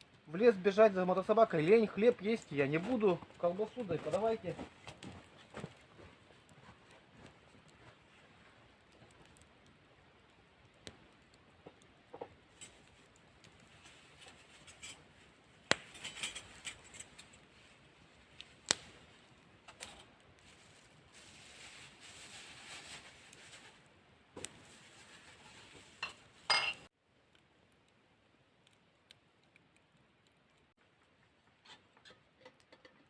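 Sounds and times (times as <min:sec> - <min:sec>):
soft rustling: 0:12.5 - 0:26.9
dishes and utensils clinking: 0:26.0 - 0:26.9.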